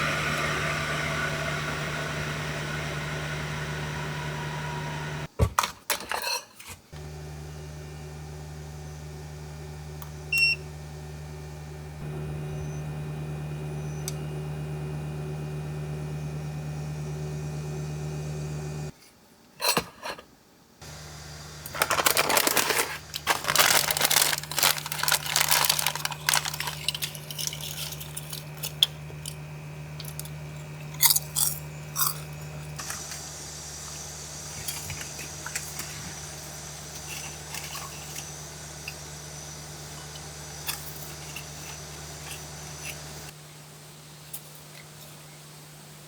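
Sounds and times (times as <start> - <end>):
low mechanical hum: 0.0 - 5.3, 7.0 - 19.0, 20.8 - 46.0
crinkling and rustling: 21.6 - 33.3, 34.5 - 39.0.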